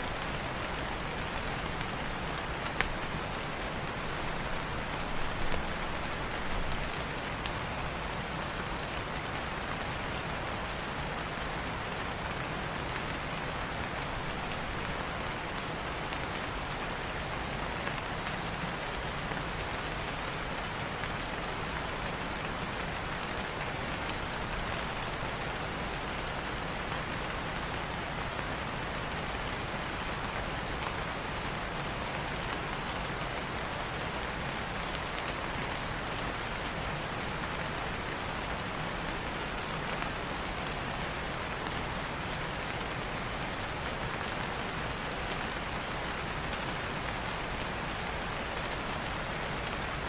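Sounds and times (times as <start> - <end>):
rain falling on foliage: 0.0 - 50.0.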